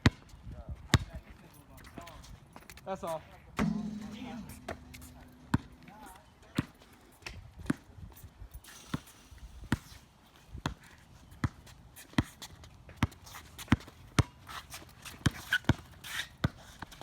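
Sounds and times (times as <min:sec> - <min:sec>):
basketball bouncing on court: 0:03.6 - 0:06.1.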